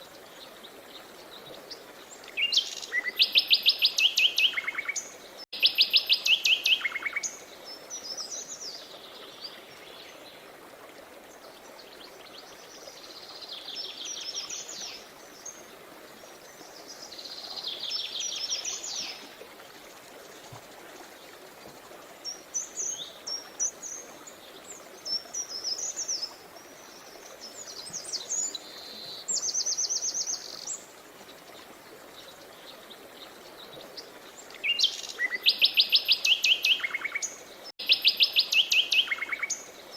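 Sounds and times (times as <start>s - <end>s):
songbirds trilling and chirping: 11.2s - 39.9s.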